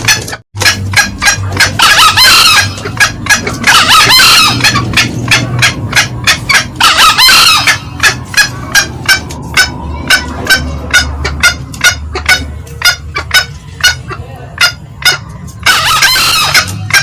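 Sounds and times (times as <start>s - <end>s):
hen cackling: 0.0s - 17.0s
cock crowing: 0.1s - 9.2s, 15.0s - 17.0s.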